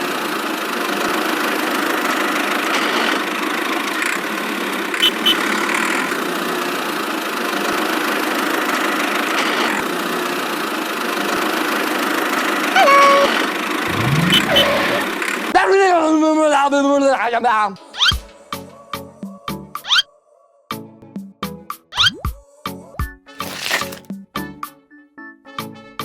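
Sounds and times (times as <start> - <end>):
brief tone: 5.0 - 5.5, 12.8 - 15.1.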